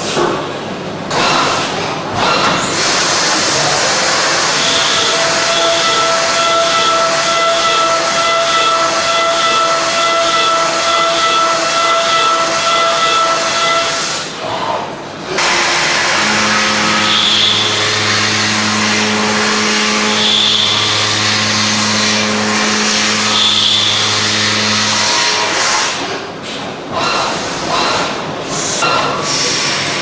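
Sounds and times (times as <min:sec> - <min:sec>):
low machine hum: 0:14.4 - 0:27.0.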